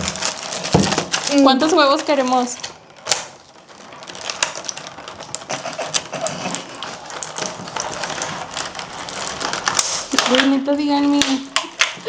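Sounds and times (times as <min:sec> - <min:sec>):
kitchen items clicking and knocking: 0:00.0 - 0:12.0.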